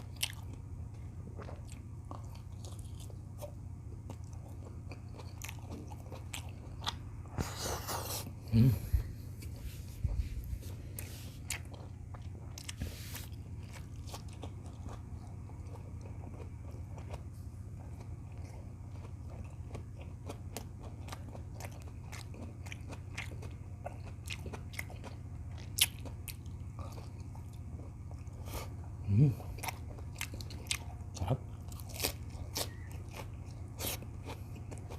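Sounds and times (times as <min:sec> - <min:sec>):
close-up chewing and crunching: 0:00.0 - 0:34.9
steady low hum: 0:00.0 - 0:34.9.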